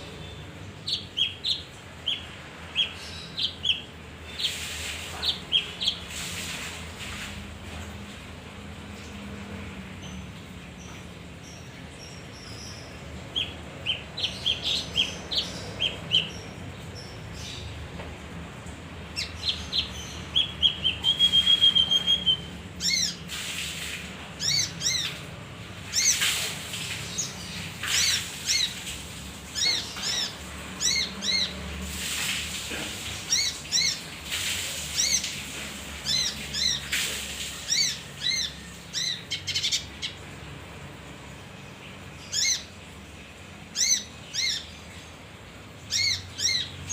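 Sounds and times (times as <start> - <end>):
songbird chirping and trilling: 0.0 - 6.1, 10.0 - 17.8, 19.0 - 23.3, 24.4 - 25.2, 29.5 - 31.7, 41.6 - 45.2, 45.8 - 46.9.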